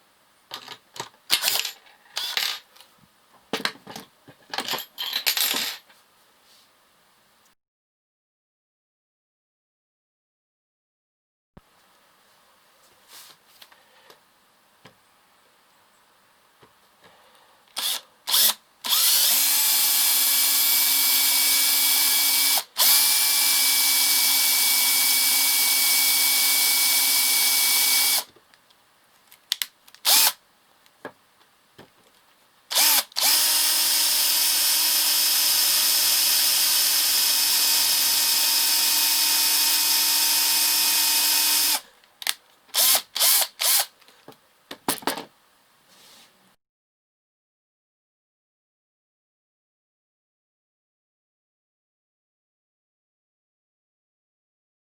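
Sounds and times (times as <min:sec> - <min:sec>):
cordless drill running: 0:17.8 - 0:28.3, 0:30.1 - 0:30.4, 0:32.7 - 0:41.8, 0:42.8 - 0:43.9.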